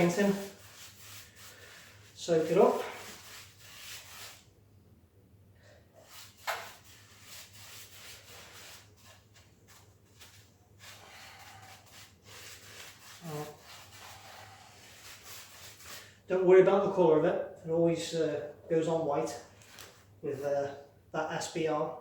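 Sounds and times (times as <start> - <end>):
paintbrush scrubbing rough floor: 0.0 - 4.5, 6.0 - 16.1.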